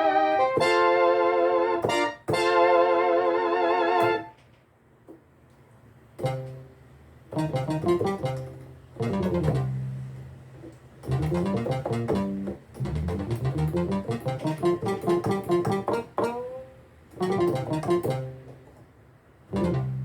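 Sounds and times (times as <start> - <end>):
synthesizer chord with vibrato: 0.0 - 4.3, 7.4 - 9.8, 11.1 - 12.4, 17.2 - 18.4, 19.6 - 20.0
plucked guitar-like synth chords: 6.2 - 6.7, 7.4 - 10.0, 11.1 - 18.6, 19.5 - 20.0
synth bass notes: 7.4 - 10.2, 11.1 - 16.6, 17.2 - 18.5, 19.5 - 20.0.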